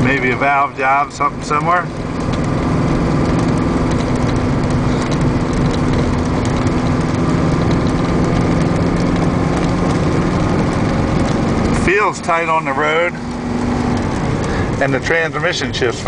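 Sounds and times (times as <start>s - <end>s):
truck engine and road noise: 0.0s - 16.0s.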